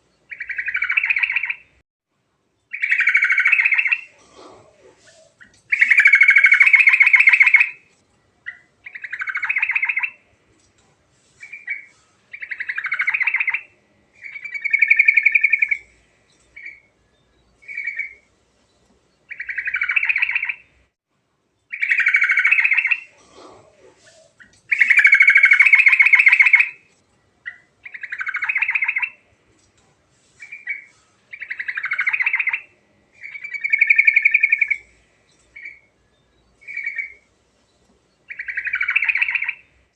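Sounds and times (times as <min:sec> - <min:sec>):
bird singing rapid phrases: 0:00.0 - 0:01.8, 0:02.6 - 0:10.3, 0:11.4 - 0:20.8, 0:21.6 - 0:29.3, 0:30.4 - 0:39.9.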